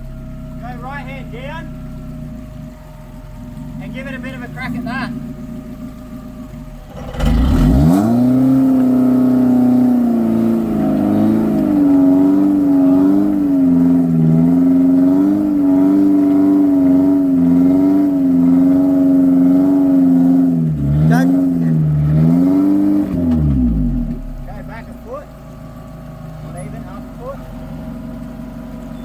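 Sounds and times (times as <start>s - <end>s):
engine revving hard: 3.6s - 5.2s, 6.6s - 25.4s.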